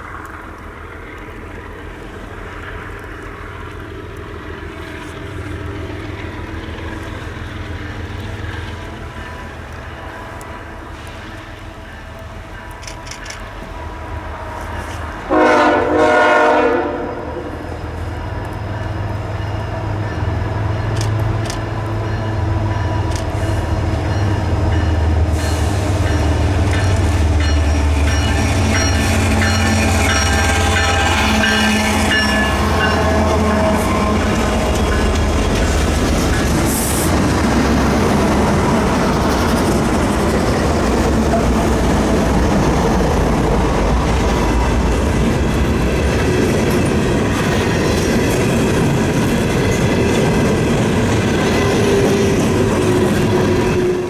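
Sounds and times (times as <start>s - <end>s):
train wheels clattering on rails: 0.0s - 16.9s, 17.6s - 54.0s
diesel locomotive rumble: 0.0s - 54.0s
train horn blast: 14.6s - 17.7s, 27.7s - 35.3s.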